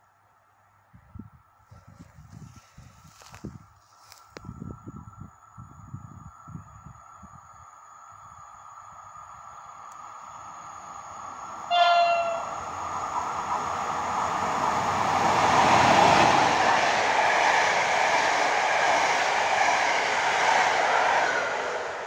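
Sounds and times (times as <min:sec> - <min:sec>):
wheels on rail: 0:09.4 - 0:22.0
locomotive horn blast: 0:11.7 - 0:12.7.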